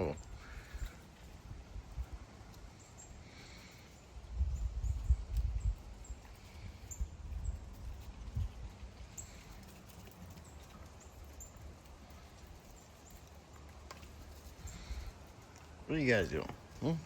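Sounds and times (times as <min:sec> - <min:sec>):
wind buffeting microphone: 0:04.2 - 0:09.1.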